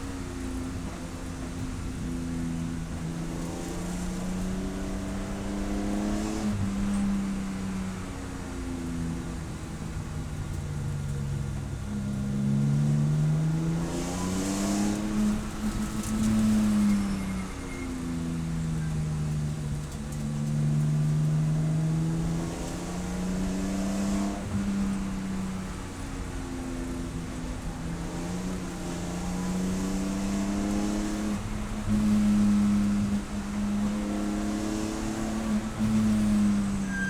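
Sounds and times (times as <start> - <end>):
race car engine revving: 12.4 - 17.8, 18.8 - 37.0.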